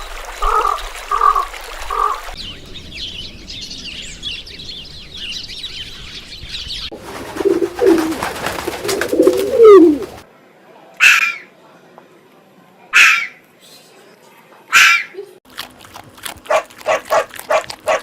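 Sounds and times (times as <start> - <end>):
birds chirping: 2.4 - 10.2
pigeons cooing: 6.9 - 10.2
wings flapping: 6.9 - 10.2.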